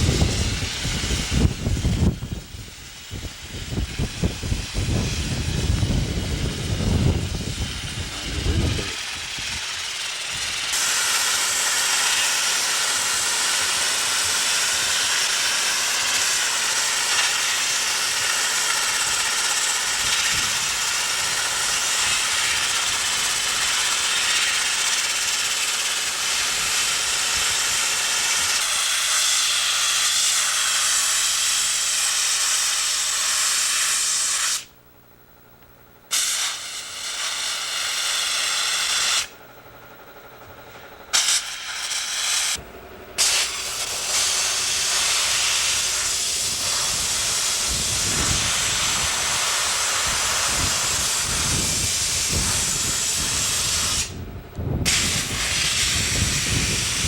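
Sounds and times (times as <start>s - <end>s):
uneven low rumbling: 0.0s - 10.8s
steady loud hiss: 0.0s - 35.0s, 35.6s - 57.0s.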